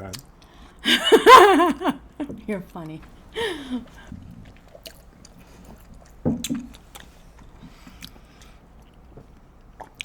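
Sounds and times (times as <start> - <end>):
soft chewing: 3.8 - 10.0.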